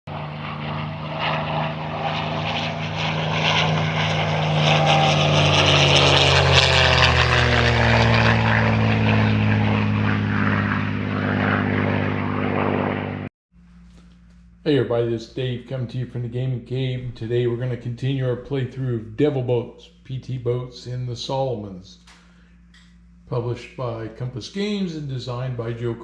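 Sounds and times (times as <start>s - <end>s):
piston engine drone passing by: 0.1s - 13.3s.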